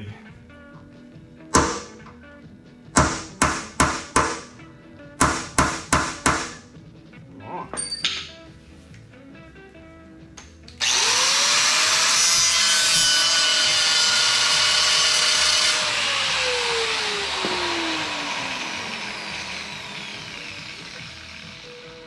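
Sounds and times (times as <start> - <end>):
electric grinder cutting metal: 1.6 - 2.2, 3.0 - 4.6, 10.8 - 22.0.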